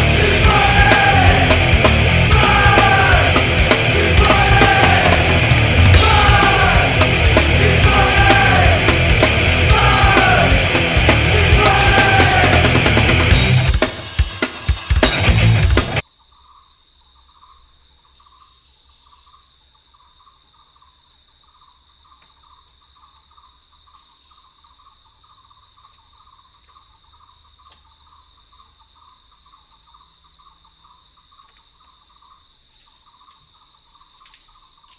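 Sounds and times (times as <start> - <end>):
insects high-pitched drone: 0.0 - 34.9.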